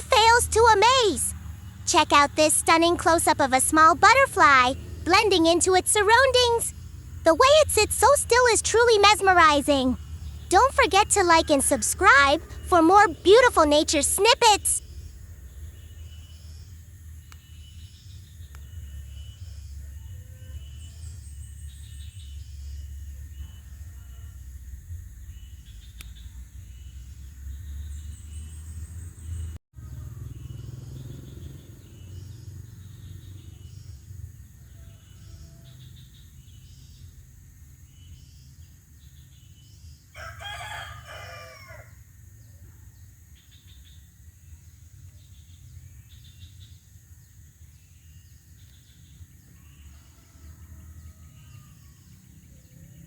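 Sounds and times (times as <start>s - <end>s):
high chirps: 1.9s - 6.7s, 7.3s - 14.8s
rooster crowing: 40.2s - 42.0s.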